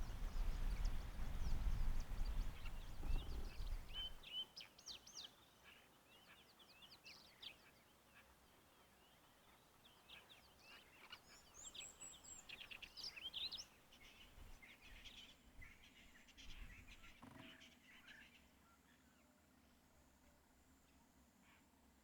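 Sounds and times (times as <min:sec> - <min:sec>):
wild birds chirping and whistling: 0:00.0 - 0:04.4.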